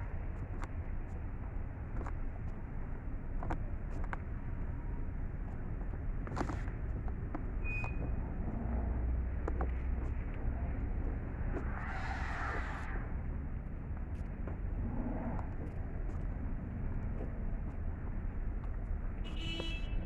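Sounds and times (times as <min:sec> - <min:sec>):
road traffic rumble: 0:00.0 - 0:20.0
vehicle passing close: 0:11.3 - 0:13.2.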